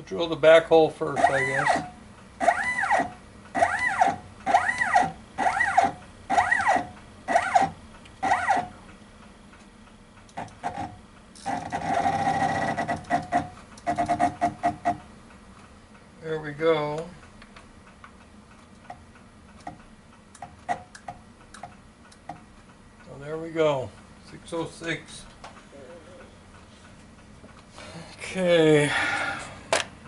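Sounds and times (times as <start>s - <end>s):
mill motor whine: 1.0s - 8.9s, 10.3s - 15.0s.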